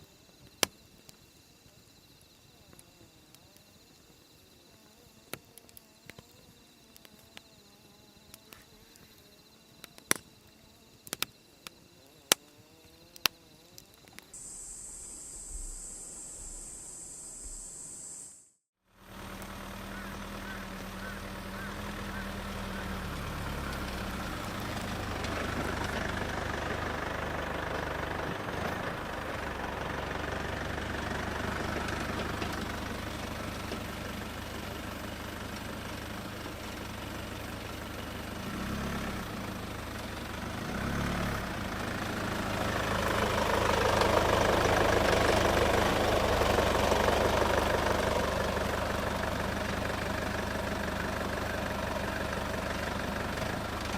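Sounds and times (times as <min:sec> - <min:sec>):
vehicle engine running: 0:14.4 - 0:18.2, 0:18.9 - 0:53.9.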